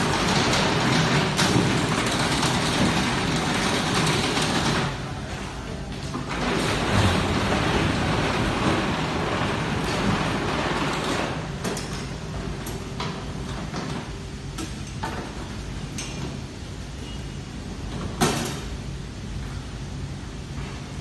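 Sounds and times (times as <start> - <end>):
mechanical clacks: 0.0 - 5.0
strapping machine motor hum: 0.0 - 5.3, 6.0 - 14.8.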